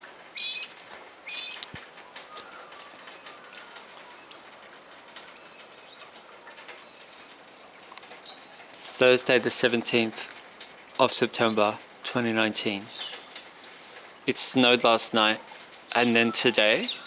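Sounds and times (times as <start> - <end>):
drip-like ticks: 0.1 - 16.0
small bird chirping: 0.3 - 4.6, 12.9 - 13.4.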